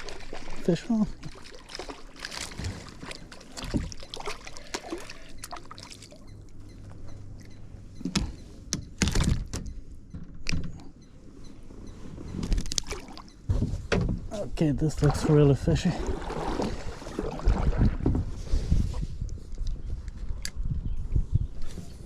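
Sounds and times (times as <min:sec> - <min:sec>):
water splashing and sloshing: 0:00.0 - 0:10.8, 0:12.0 - 0:19.7.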